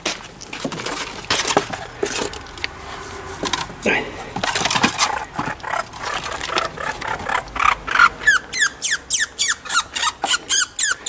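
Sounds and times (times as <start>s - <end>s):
rustling and scraping: 0.0s - 7.6s
baby squirrel squealing: 4.8s - 11.0s.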